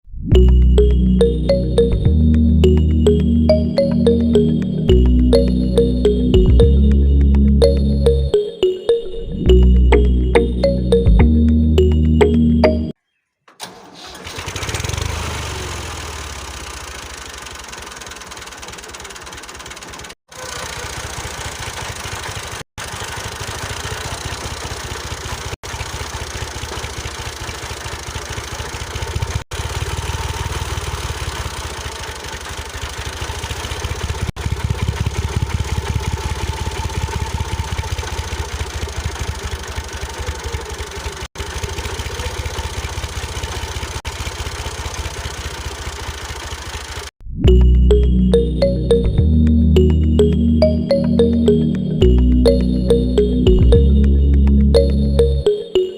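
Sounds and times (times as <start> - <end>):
small engine chugging: 13.6 - 47.1.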